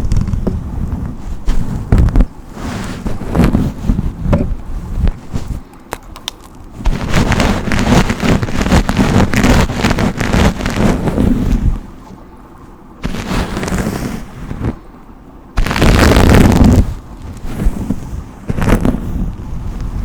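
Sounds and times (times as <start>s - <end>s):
heavy low rumble: 6.2s - 20.0s
hairbrush strokes rustling: 13.0s - 14.8s.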